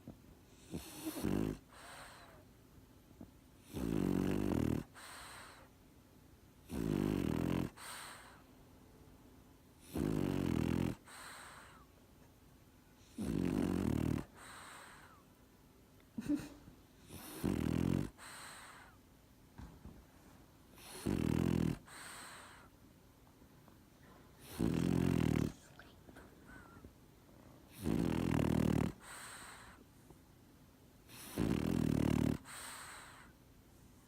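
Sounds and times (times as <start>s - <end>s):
dog snoring: 0.5s - 2.4s, 3.6s - 5.7s, 6.6s - 8.4s, 9.8s - 11.9s, 13.0s - 15.2s, 16.2s - 19.0s, 20.7s - 22.7s, 24.4s - 26.9s, 27.7s - 29.8s, 31.1s - 33.3s
dog snorting: 0.6s - 2.2s, 6.7s - 8.3s, 9.8s - 11.7s, 13.2s - 15.0s, 17.1s - 18.9s, 20.8s - 22.6s, 24.4s - 26.9s, 27.7s - 29.8s, 31.1s - 33.2s.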